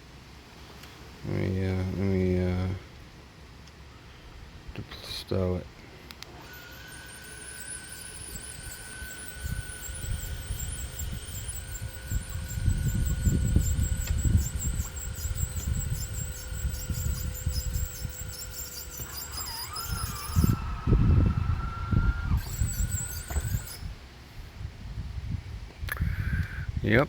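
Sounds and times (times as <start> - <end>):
electric motor whine: 6.2 - 24.0
wind buffeting microphone: 9.4 - 27.0.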